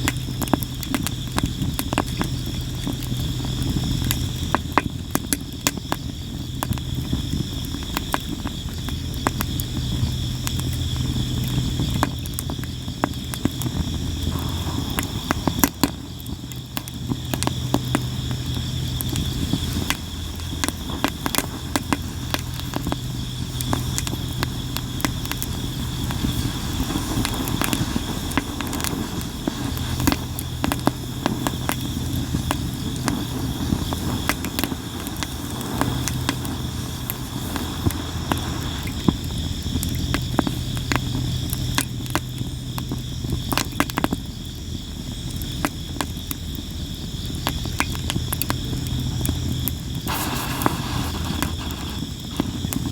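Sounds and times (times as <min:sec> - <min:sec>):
firewood crackling and popping: 0:00.0 - 0:52.9
insects chorus: 0:00.0 - 0:52.9
low rumble: 0:11.3 - 0:39.6.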